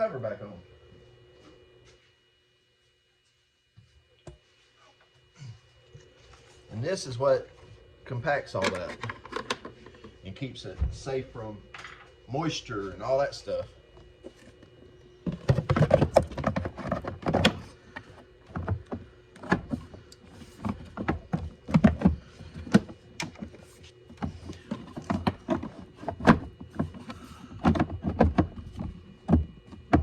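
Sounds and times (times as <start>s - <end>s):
hard plastic parts knocking: 20.6s - 30.0s.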